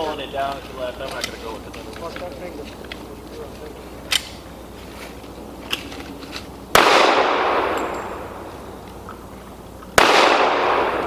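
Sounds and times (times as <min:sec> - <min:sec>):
pistol shots with echo: 0:06.7 - 0:08.5, 0:10.0 - 0:11.0.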